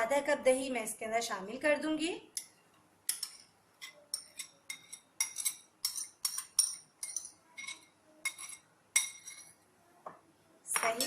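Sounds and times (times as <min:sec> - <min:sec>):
metal spoon clinking against bowl: 0:02.4 - 0:09.6
spoon scraping yogurt: 0:03.1 - 0:09.7.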